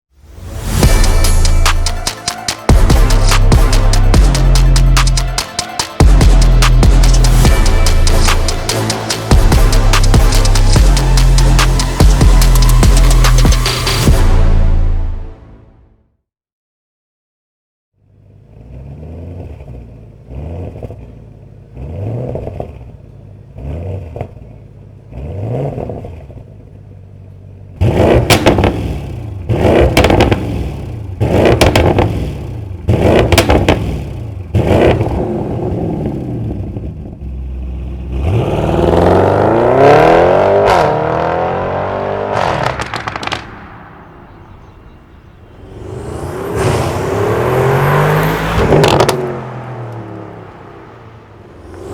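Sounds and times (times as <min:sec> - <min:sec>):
car engine revving: 0:00.5 - 0:14.3, 0:18.0 - 0:51.9
exhaust crackles: 0:18.0 - 0:51.9.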